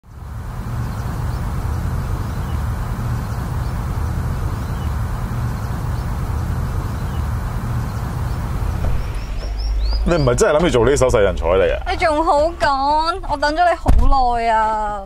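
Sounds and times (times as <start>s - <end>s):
vehicle engine running: 0.0s - 14.8s
faint bird chirps: 6.8s - 10.4s.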